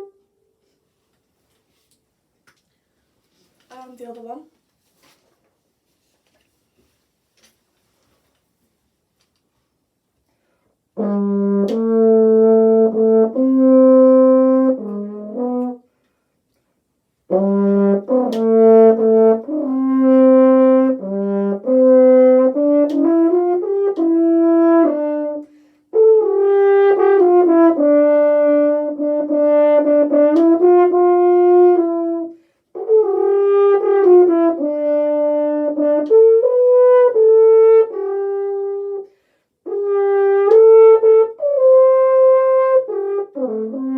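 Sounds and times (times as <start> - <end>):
french horn playing: 0.0 - 0.4, 11.0 - 15.9, 17.3 - 43.9.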